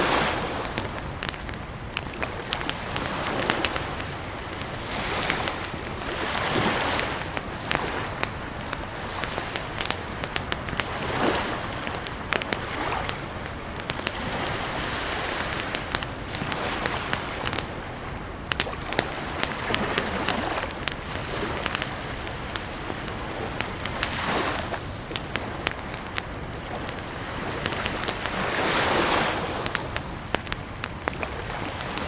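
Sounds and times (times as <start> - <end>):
campfire crackling and popping: 0.0 - 32.0
lake water lapping: 0.0 - 32.0.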